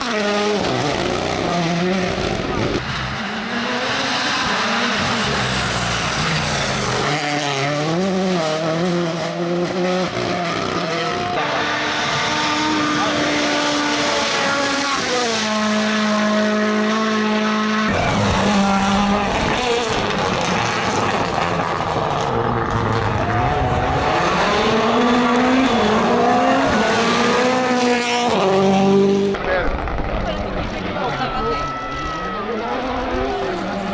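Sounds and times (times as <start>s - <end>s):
rally car engine revving: 0.0s - 33.9s.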